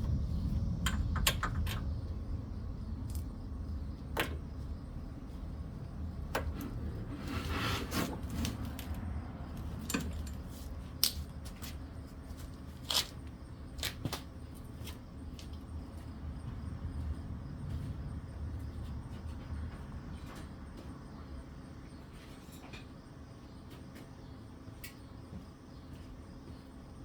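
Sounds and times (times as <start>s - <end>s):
low steady hum: 0.0s - 27.0s
tools clicking and clinking: 9.6s - 11.3s.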